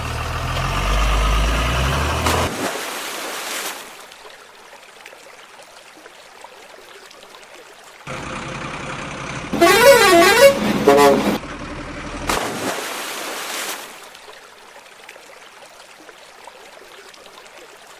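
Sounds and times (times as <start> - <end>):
truck engine running: 0.0 - 2.5, 8.1 - 12.3
trickle of flowing water: 0.0 - 9.5, 11.4 - 17.9
warbling truck horn: 9.5 - 11.4.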